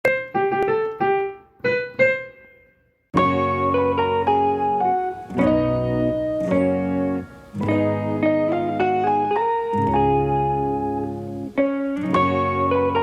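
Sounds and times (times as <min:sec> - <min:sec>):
keyboard music with chords: 0:00.0 - 0:13.0.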